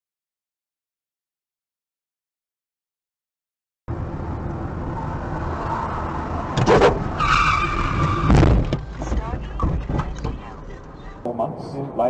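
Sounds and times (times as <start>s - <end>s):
car engine and road rumble: 3.9s - 12.0s.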